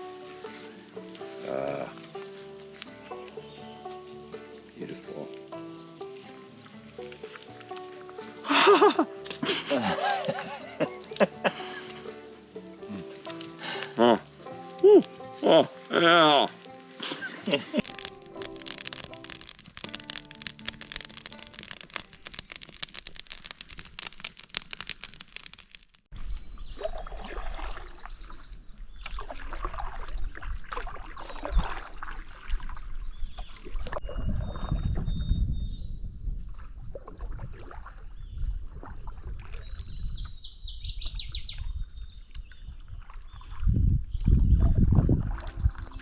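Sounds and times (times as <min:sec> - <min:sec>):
background music: 0:00.0 - 0:21.8
water sounds: 0:00.0 - 0:26.1.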